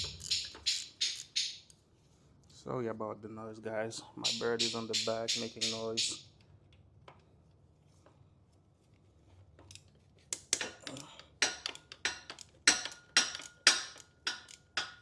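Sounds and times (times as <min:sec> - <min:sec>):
tools clinking on metal: 0:10.4 - 0:15.0.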